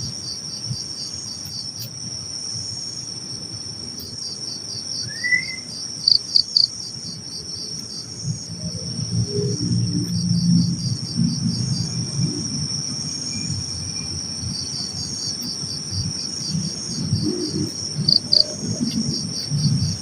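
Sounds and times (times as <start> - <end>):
crickets trilling and chirping: 0.0 - 20.0
low rumble: 15.9 - 20.0.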